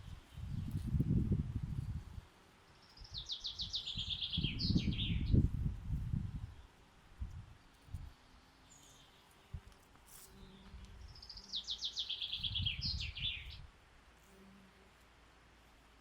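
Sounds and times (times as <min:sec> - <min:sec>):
songbird singing: 0:02.6 - 0:13.7.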